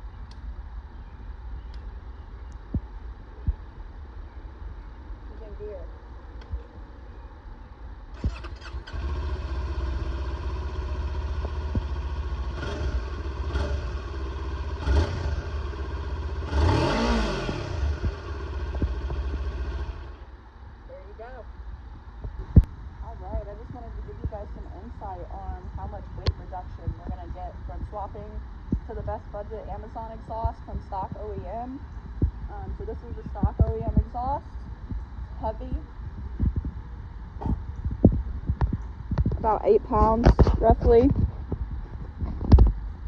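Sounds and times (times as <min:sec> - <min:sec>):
motorcycle engine idling: 0:08.2 - 0:20.4.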